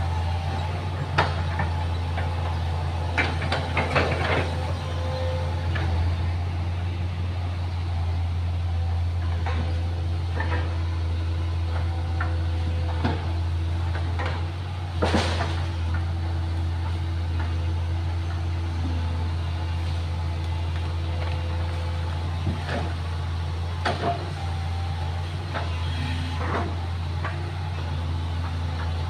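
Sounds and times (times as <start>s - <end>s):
excavator diesel engine humming: 0.0s - 29.0s
machine clanks and knocks: 0.5s - 6.0s, 13.9s - 16.1s.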